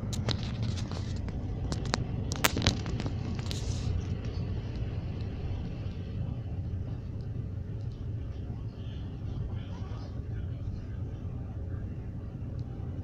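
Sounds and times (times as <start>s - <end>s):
sharp clicks and knocks: 0.0s - 5.3s
train rumbling: 0.0s - 13.0s.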